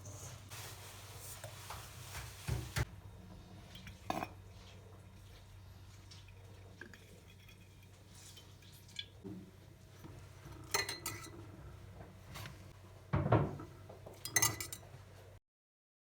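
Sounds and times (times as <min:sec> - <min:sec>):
dishes and cutlery clinking: 0:10.5 - 0:11.4, 0:13.4 - 0:14.9.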